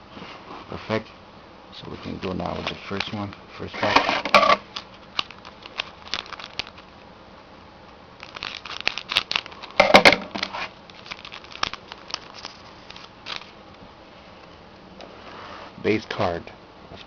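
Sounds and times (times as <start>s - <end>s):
foil wrapper crinkling and tearing: 4.6s - 7.0s, 8.2s - 13.8s.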